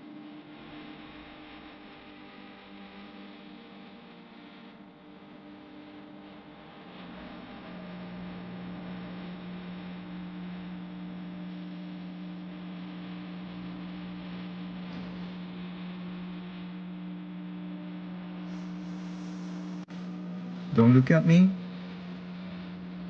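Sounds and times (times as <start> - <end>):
electrical hum: 4.8 - 23.0
high steady tone: 19.5 - 22.3.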